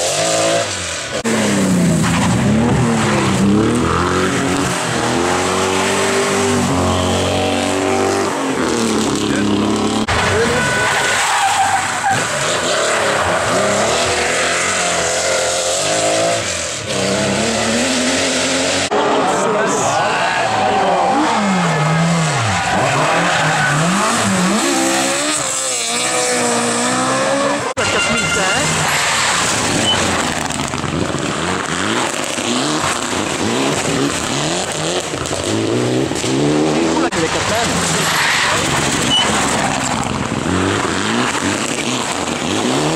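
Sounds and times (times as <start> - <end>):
rally car engine revving: 0.0 - 42.9
car engine accelerating hard: 12.0 - 27.8.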